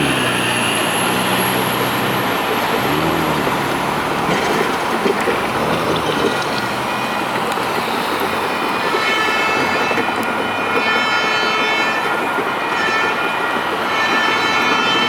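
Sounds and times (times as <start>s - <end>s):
train rumbling past on rails: 0.0s - 15.0s.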